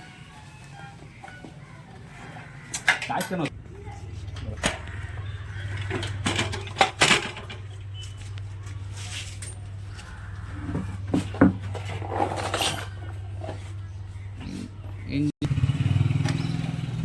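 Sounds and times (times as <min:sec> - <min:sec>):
metal tools clinking: 0:09.2 - 0:09.8, 0:11.7 - 0:13.2.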